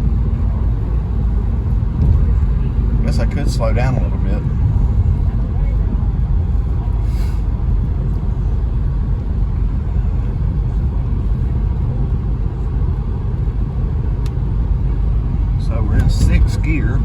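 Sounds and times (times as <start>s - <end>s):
car engine cruising: 0.0s - 17.0s
road noise inside car: 0.0s - 17.0s.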